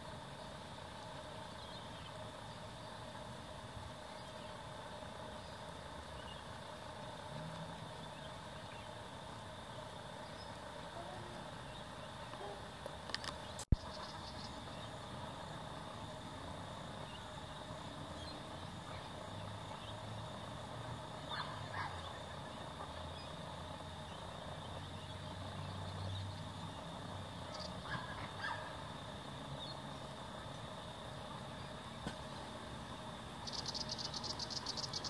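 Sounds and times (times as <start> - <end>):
birds calling: 33.4 - 35.0.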